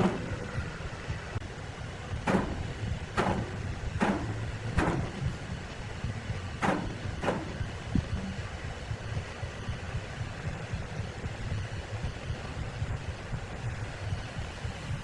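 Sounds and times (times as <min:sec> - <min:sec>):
sawmill machinery rumbling: 0:00.0 - 0:08.6
sharp knocks: 0:02.2 - 0:05.4, 0:06.6 - 0:07.7.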